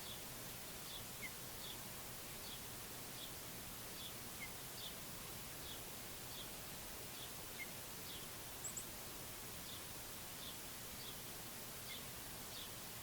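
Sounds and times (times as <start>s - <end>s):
background hiss: 0.0s - 13.0s
songbirds chirping: 0.0s - 13.0s.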